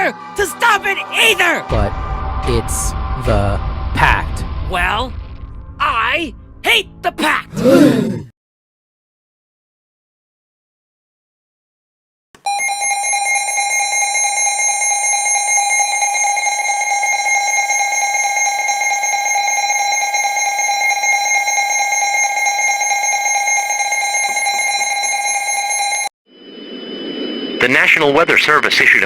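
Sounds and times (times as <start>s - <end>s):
electronic alarm tone: 12.4s - 28.3s.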